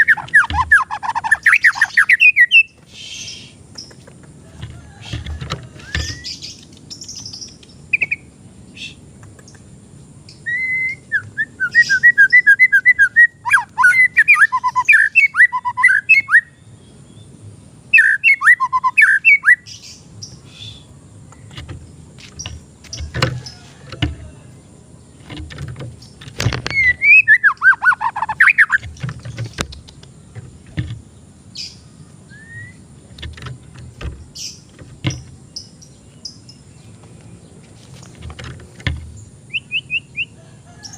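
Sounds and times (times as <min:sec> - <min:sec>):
bird singing whistled notes: 0:00.0 - 0:03.6, 0:10.3 - 0:17.3, 0:17.9 - 0:20.9, 0:26.6 - 0:29.0, 0:31.5 - 0:32.9, 0:39.2 - 0:40.9.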